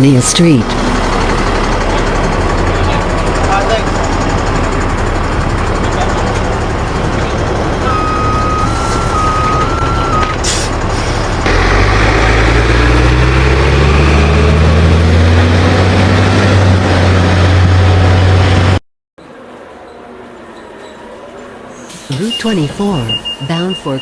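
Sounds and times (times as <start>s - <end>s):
bus diesel engine accelerating: 0.0s - 24.0s
two-tone electronic chime: 7.9s - 10.3s.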